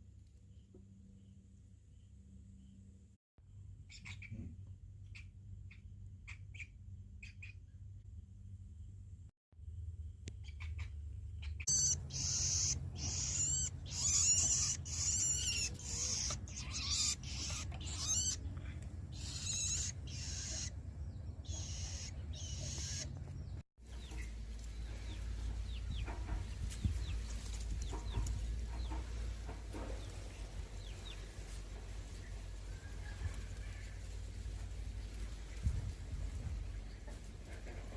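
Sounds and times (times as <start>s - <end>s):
low steady hum: 0.0s - 37.9s
faint bird chirps: 10.4s - 23.1s
nestling birds begging calls: 10.4s - 31.7s.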